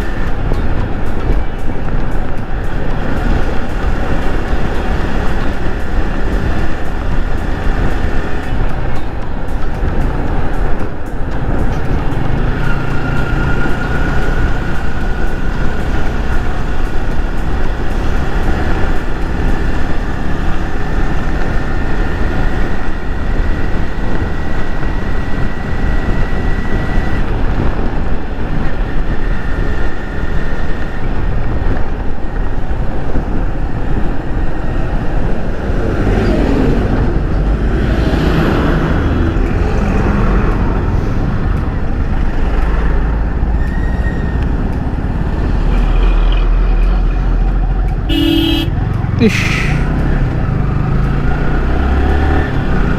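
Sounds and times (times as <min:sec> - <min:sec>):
passing vehicle: 0:00.0 - 0:52.9
road and wind noise: 0:00.0 - 0:52.9
motorcycle engine running: 0:40.2 - 0:52.9.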